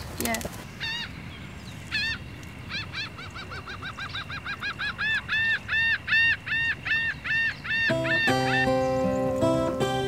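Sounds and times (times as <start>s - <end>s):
bird piping calls: 0.7s - 10.0s.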